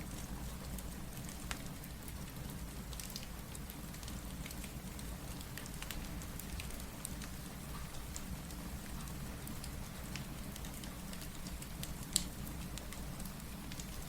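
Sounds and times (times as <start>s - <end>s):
steady rain: 0.0s - 14.0s
wood fire crackling: 0.0s - 14.0s.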